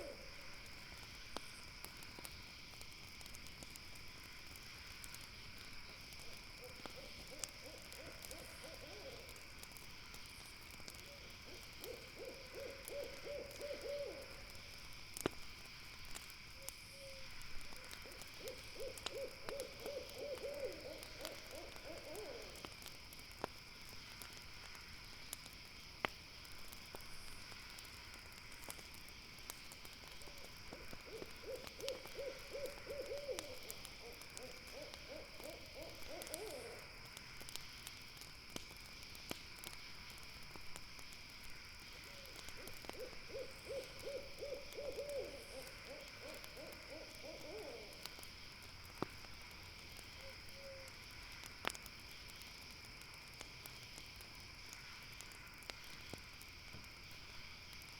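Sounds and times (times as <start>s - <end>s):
owl hooting: 0.0s - 0.2s, 6.6s - 9.3s, 11.1s - 14.4s, 17.0s - 17.2s, 18.0s - 22.6s, 31.0s - 36.8s, 42.1s - 48.0s, 50.2s - 50.9s
campfire crackling: 0.0s - 57.9s
insects chirring: 0.0s - 57.9s.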